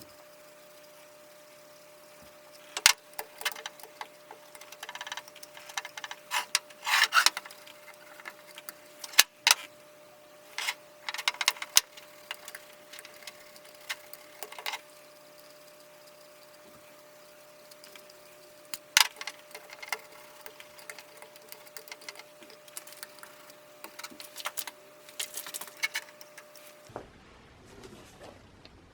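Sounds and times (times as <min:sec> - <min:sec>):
faint steady hum: 0:00.0 - 0:28.9
clicks and knocks on metal parts: 0:02.6 - 0:09.7, 0:10.6 - 0:14.9, 0:17.7 - 0:26.7.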